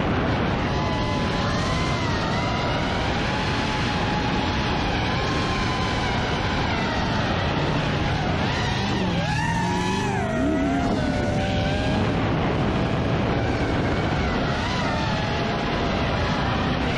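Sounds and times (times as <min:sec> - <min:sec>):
constant rushing noise: 0:00.0 - 0:16.9
car engine running: 0:06.9 - 0:12.6.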